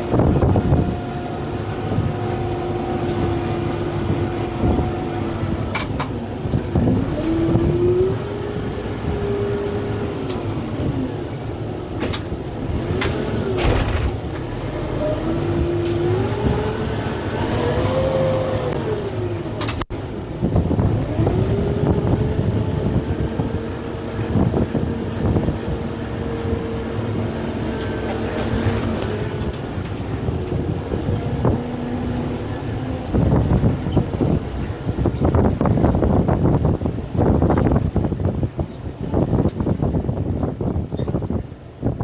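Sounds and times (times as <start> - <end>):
tractor diesel engine working hard: 0.0 - 41.6
sharp cracks and knocks: 13.0 - 14.4.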